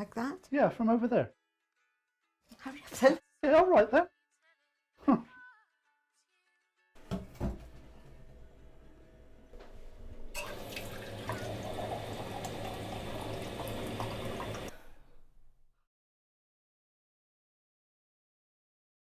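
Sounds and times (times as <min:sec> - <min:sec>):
water running from tap: 0:10.4 - 0:14.8.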